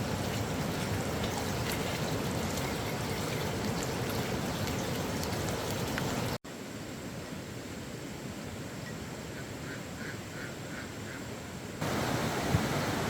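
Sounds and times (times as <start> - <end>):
running water: 0.0 - 6.4, 11.8 - 13.0
water drips and splashes: 0.0 - 6.4.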